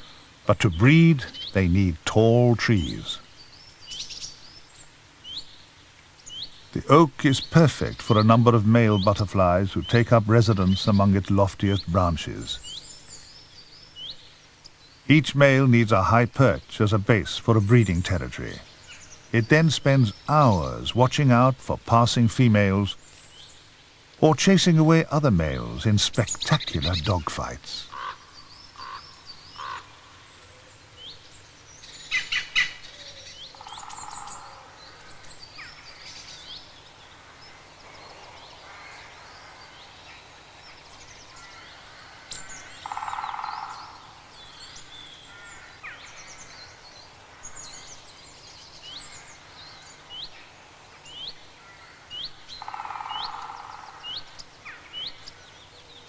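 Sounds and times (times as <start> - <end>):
birds singing and chirping: 0.0 - 56.0
low bird call: 25.6 - 56.0.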